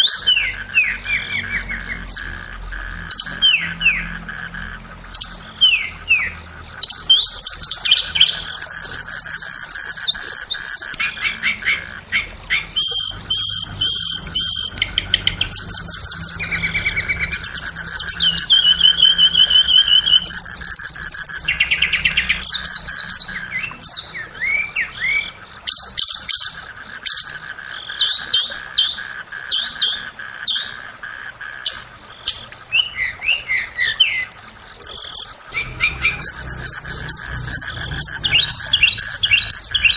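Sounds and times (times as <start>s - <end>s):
songbird whistles and trills: 5.1s - 30.7s, 31.7s - 39.9s.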